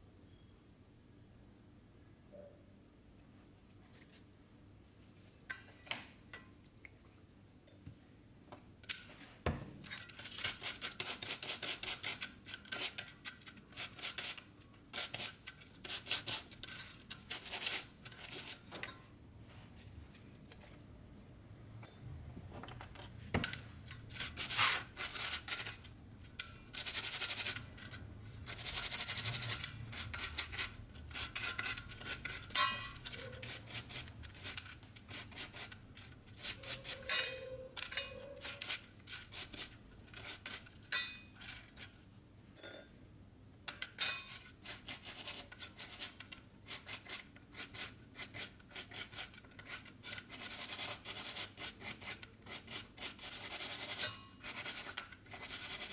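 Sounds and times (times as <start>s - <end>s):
light metallic clinks: 7.6s - 8.0s, 21.8s - 22.3s, 42.6s - 43.0s
brush scrubbing metal parts: 9.9s - 18.8s, 23.6s - 42.0s, 43.8s - 55.9s.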